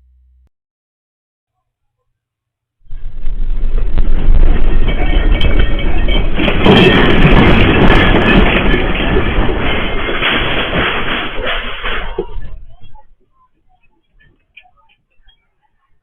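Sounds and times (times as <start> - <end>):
building rumbling and rattling: 2.9 - 14.9.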